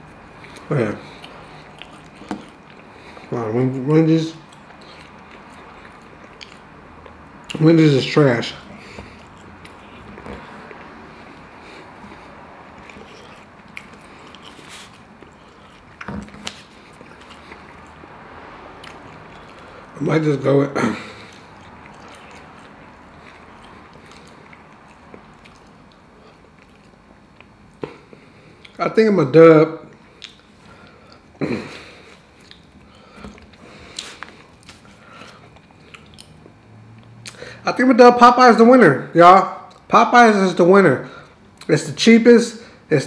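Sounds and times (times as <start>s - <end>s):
person chewing: 0.0s - 3.4s, 4.3s - 20.0s, 20.8s - 28.8s, 29.9s - 37.6s, 39.6s - 39.9s
wet mouth clicks: 0.5s - 3.2s, 4.4s - 7.6s, 30.1s - 30.5s, 35.5s - 36.5s, 37.1s - 37.4s.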